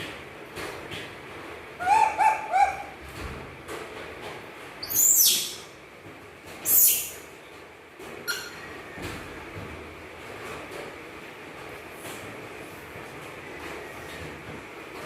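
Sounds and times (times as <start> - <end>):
baby monkey calling: 1.8 - 3.0, 4.8 - 5.7, 6.6 - 7.2, 8.3 - 8.6.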